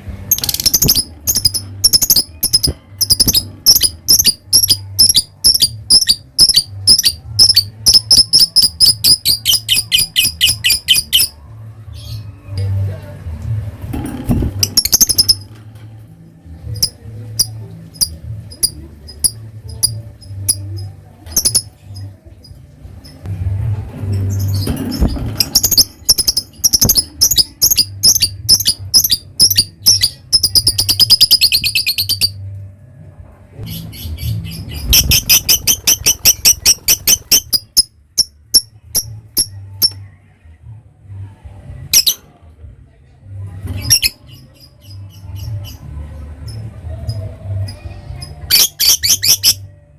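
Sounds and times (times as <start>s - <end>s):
bird ticking chirps: 0.3s - 11.3s, 16.8s - 21.7s, 25.5s - 32.3s.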